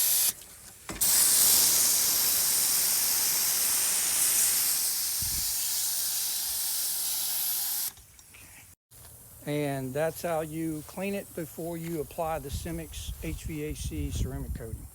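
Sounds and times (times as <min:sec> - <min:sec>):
pump sprayer hissing: 0:00.0 - 0:08.0.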